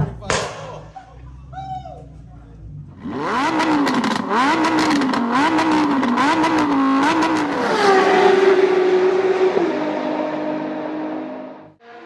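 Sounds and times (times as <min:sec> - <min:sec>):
exhaust crackling: 0:00.0 - 0:09.5
car engine revving: 0:02.1 - 0:12.0.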